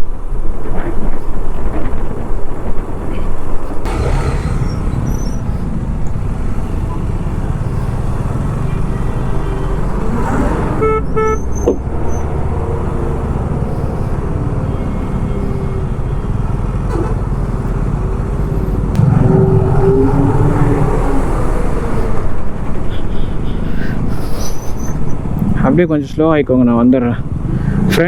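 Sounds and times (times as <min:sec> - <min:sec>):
wind buffeting microphone: 0:00.0 - 0:24.1
motorcycle engine running: 0:03.9 - 0:09.6
vehicle horn beeps: 0:10.7 - 0:12.3.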